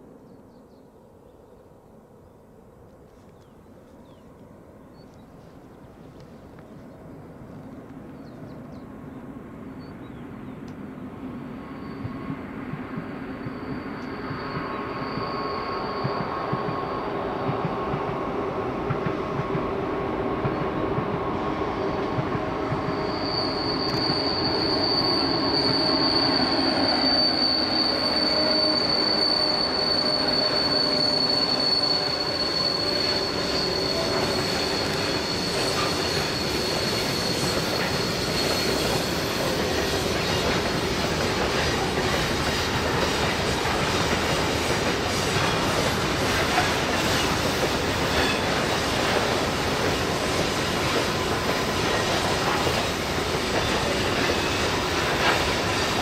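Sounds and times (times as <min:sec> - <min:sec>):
train running on rails: 0:01.9 - 0:56.0
high-pitched wheel squeal: 0:13.2 - 0:17.4, 0:21.8 - 0:56.0.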